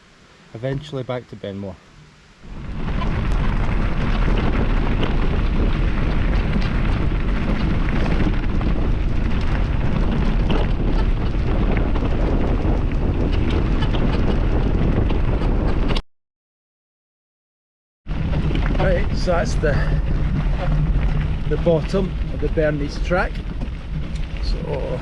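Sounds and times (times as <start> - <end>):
wind rushing over microphone: 1.8 - 16.0, 18.1 - 25.0
tyre rumble: 2.0 - 16.0, 18.1 - 25.0
small rattles and clicks: 2.9 - 16.0, 18.2 - 25.0.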